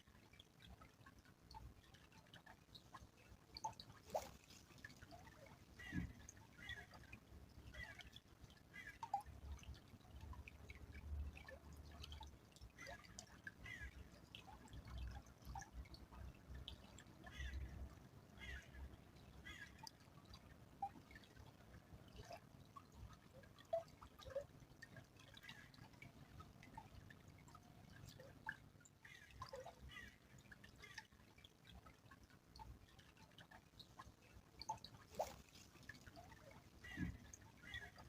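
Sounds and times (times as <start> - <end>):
small stream trickling: 0.0 - 38.0
water drips and plinks: 0.0 - 38.0.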